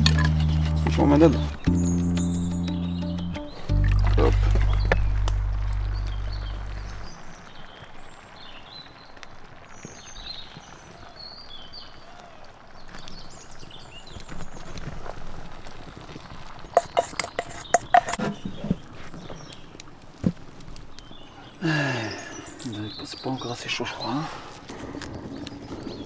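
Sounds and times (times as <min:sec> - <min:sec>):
background music: 0:00.0 - 0:05.9
sharp knocks and clatter: 0:16.8 - 0:18.9.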